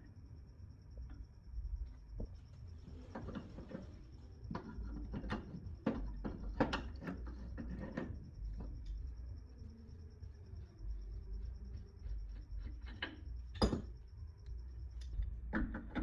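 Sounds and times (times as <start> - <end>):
steady low hum: 0.0 - 16.0
tools and parts knocking and clicking: 3.0 - 9.0, 12.0 - 14.1, 15.0 - 16.0.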